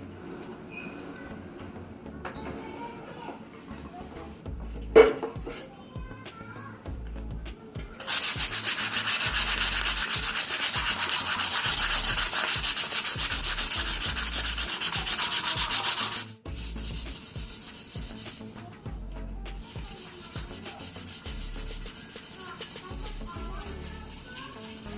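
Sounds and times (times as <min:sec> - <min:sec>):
sandpaper rubbing on metal pipe: 0:08.0 - 0:18.9, 0:19.6 - 0:24.9.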